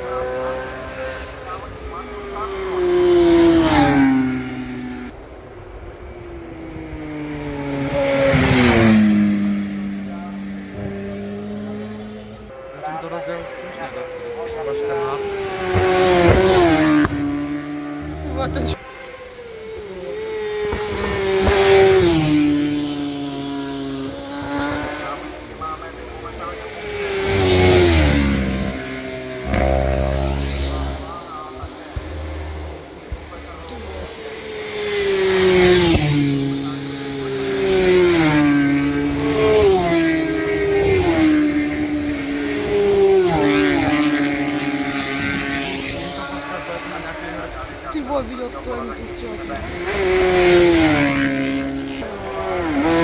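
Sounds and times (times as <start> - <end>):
motorcycle passing by at speed: 0.0 - 5.1, 6.2 - 12.7, 14.0 - 53.0.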